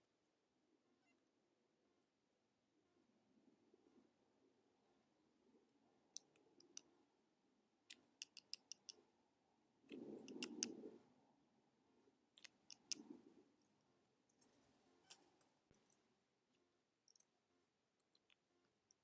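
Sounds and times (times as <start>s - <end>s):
sharp pecking clicks: 6.2s - 6.9s, 7.9s - 9.0s, 9.9s - 10.8s, 12.4s - 13.2s.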